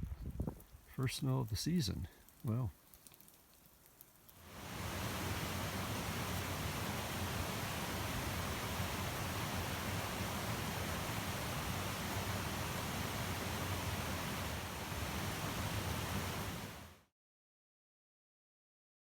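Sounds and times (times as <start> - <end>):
wind blowing across microphone: 0.0 - 1.0.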